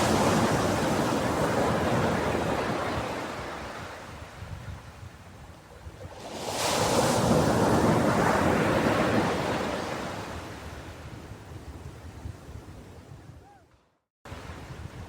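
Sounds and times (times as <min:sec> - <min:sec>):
ocean wave breaking on beach: 0:00.0 - 0:04.0.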